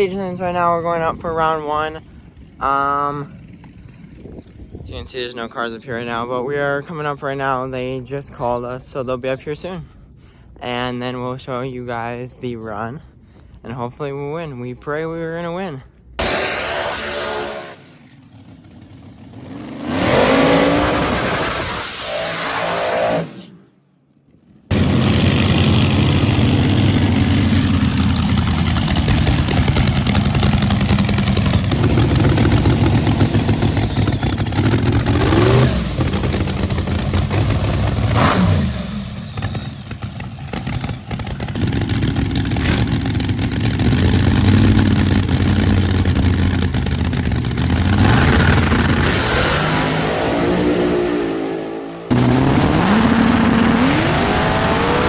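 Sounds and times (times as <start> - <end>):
drag race car engine revving: 16.2 - 23.6, 24.7 - 55.0.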